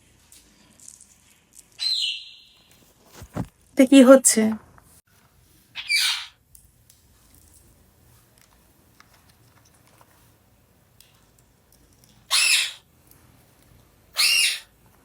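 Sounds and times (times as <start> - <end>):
parrot squawking: 1.8 - 2.5, 5.8 - 6.4, 12.3 - 12.8, 14.2 - 14.7.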